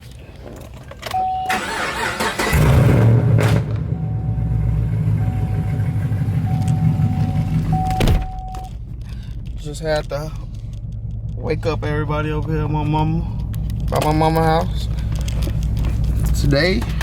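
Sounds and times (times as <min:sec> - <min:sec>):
car engine starting and idling: 0:00.1 - 0:17.0
short beep: 0:03.9 - 0:08.8.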